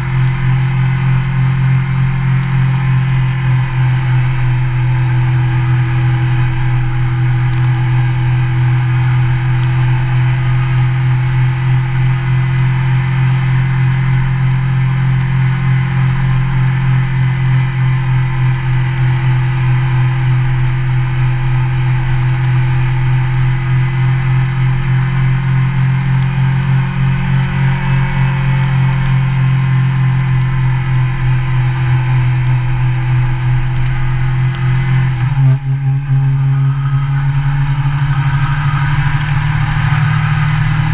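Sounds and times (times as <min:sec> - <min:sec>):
motorcycle engine droning: 0:00.0 - 0:40.9.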